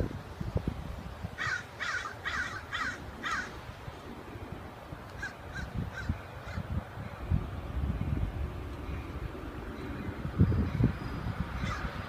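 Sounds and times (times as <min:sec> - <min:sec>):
harsh bird calls: 0:01.4 - 0:03.6, 0:09.8 - 0:12.0.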